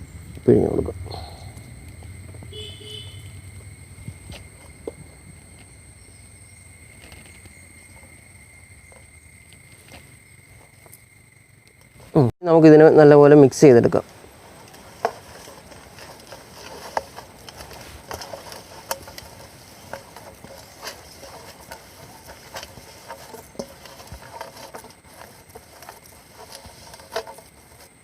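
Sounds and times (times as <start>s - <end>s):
spice mix stirred in a bowl: 14.4s - 28.0s.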